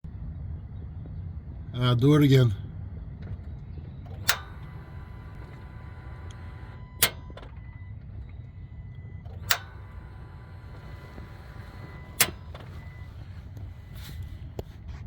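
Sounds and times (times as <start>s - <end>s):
sharp metallic clicks: 4.1s - 7.7s, 8.9s - 14.7s.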